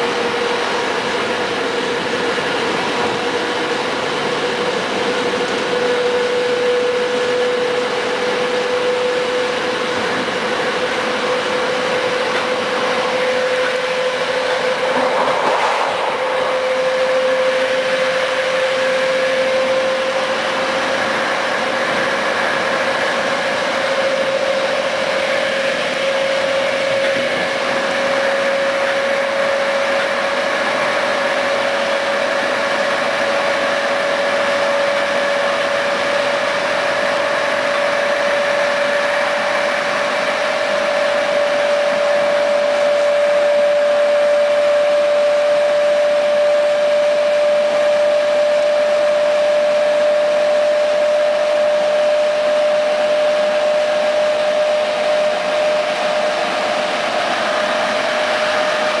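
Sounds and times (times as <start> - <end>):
train rushing noise with whine: 0.0 - 59.0.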